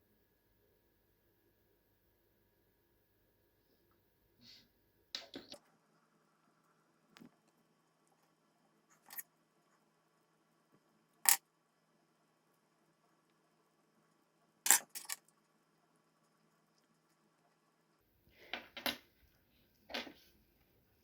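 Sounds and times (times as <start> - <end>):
sharp clicks of small hard objects: 11.2 - 11.4, 14.7 - 15.2.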